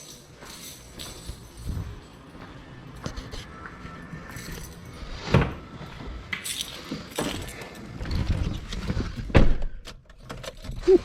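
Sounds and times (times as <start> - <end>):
car keys jangling: 0.0 - 2.5, 4.3 - 5.3, 6.4 - 7.9, 9.8 - 11.0.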